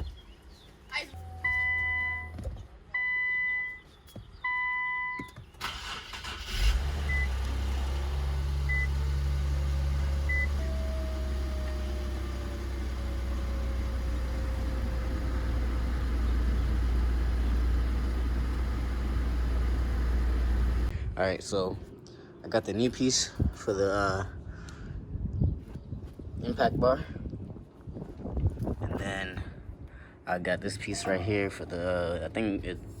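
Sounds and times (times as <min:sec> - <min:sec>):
car warning chime: 0:01.2 - 0:02.4, 0:03.0 - 0:03.8, 0:04.4 - 0:05.3
short beeps: 0:01.2 - 0:02.4, 0:03.0 - 0:03.8, 0:04.4 - 0:05.3
car starter cranking: 0:05.6 - 0:09.0
car engine idling: 0:05.6 - 0:20.9.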